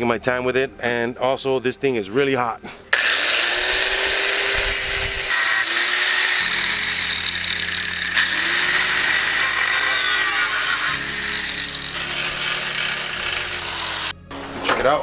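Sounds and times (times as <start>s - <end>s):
power tool grinding sheet steel: 2.9s - 14.2s.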